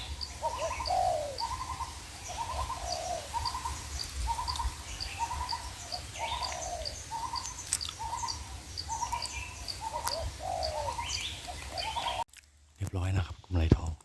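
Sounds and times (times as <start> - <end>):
doves cooing: 0.0 - 12.2
small bird chirping: 0.0 - 12.3.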